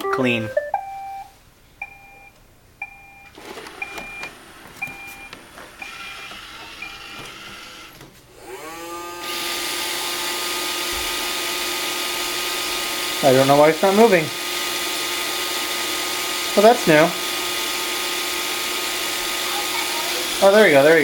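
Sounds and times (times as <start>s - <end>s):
robot vacuum motor hum: 5.5s - 13.2s, 14.3s - 21.0s.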